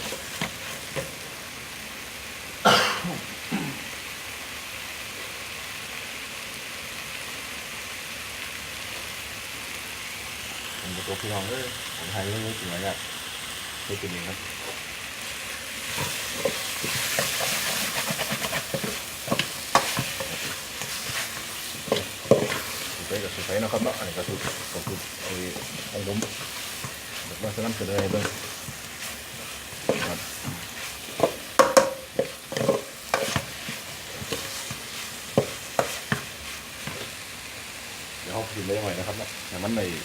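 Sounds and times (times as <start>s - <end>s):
pork sizzling in hot oil: 0.0s - 40.0s
utensil scraping and knocking pan: 15.9s - 37.1s
spatula knocking against pan: 31.2s - 33.5s.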